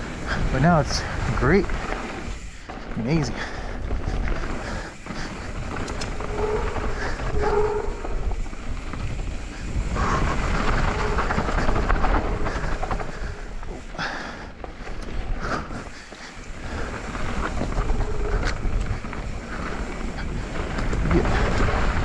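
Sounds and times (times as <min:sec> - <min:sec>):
bike tyres rolling over dirt: 0:00.0 - 0:22.0
wind buffeting microphone: 0:00.0 - 0:22.0.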